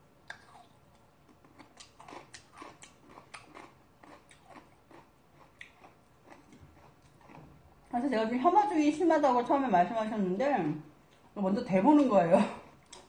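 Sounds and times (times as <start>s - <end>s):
chewing food: 0.2s - 8.0s, 12.0s - 13.0s.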